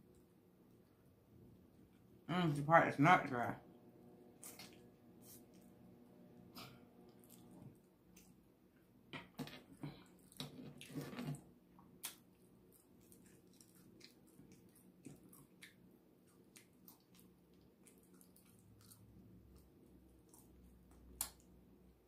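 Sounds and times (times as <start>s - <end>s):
wet chewing of meat: 10.0s - 21.6s.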